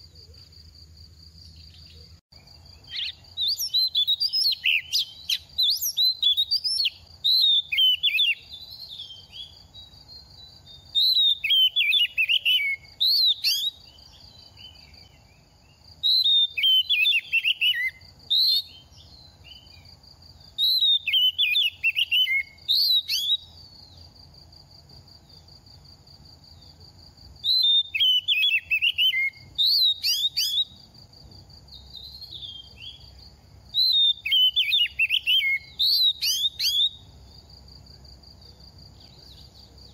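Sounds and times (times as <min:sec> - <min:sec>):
bird singing whistled phrases: 0:02.8 - 0:15.1, 0:16.0 - 0:19.8, 0:20.6 - 0:23.5, 0:27.4 - 0:30.8, 0:31.9 - 0:33.1, 0:33.7 - 0:37.1.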